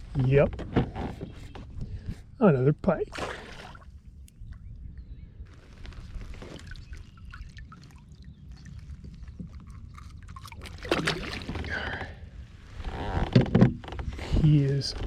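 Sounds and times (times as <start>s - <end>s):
water splashing against kayak: 5.7s - 11.9s.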